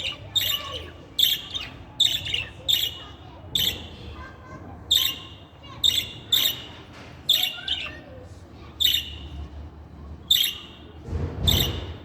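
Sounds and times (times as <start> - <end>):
budgerigar chirping: 0.0 - 3.0, 8.8 - 9.3, 10.3 - 10.8.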